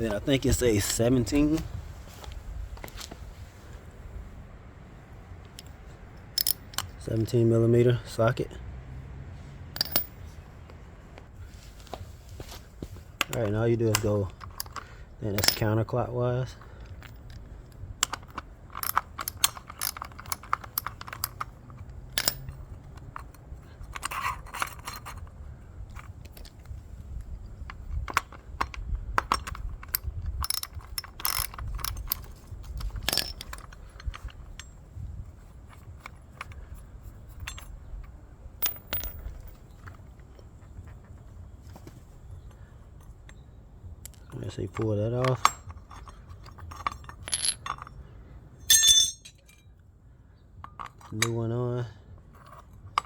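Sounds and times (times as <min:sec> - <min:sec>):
socket ratchet clicking: 0:06.3 - 0:07.0, 0:16.8 - 0:22.6, 0:27.9 - 0:32.3
metallic clinks of tools: 0:44.7 - 0:47.9, 0:48.6 - 0:49.7.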